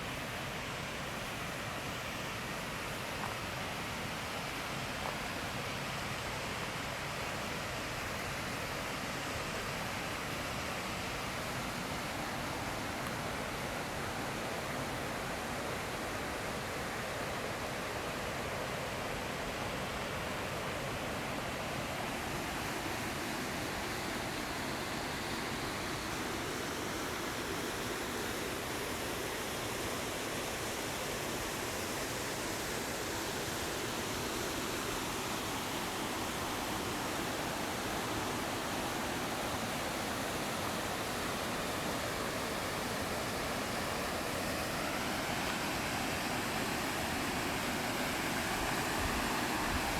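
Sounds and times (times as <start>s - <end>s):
water flowing: 22.1s - 49.9s.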